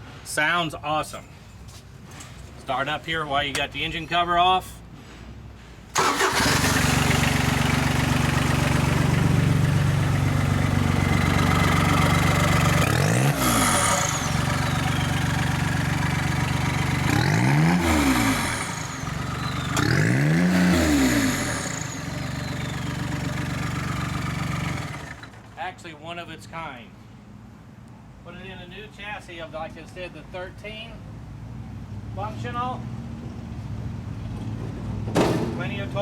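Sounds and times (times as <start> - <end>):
diesel engine idling and revving: 5.9 - 25.6.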